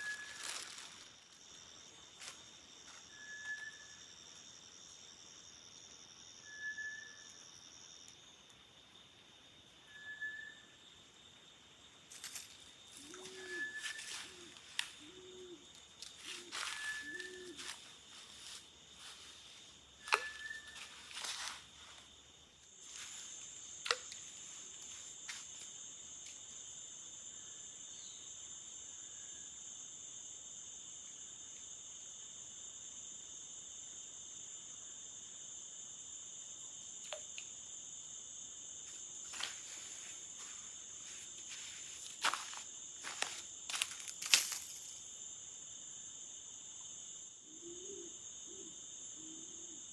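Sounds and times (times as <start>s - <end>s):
high insect trill: 0.0s - 49.9s
insects chirring: 0.0s - 49.9s
dove cooing: 13.0s - 15.6s, 16.4s - 17.7s, 47.5s - 49.7s.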